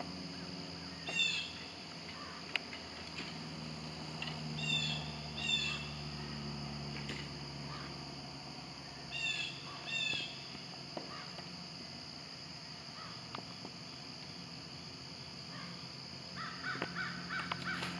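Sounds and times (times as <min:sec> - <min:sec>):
insects buzzing: 0:00.0 - 0:17.9
bird harsh calls: 0:00.9 - 0:02.5, 0:04.6 - 0:06.1, 0:09.1 - 0:10.5.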